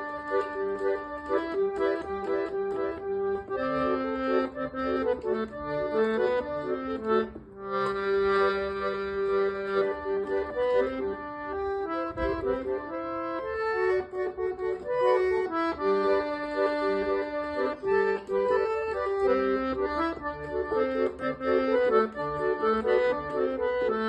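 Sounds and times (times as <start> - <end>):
accordion playing lively tune: 0.0 - 24.0.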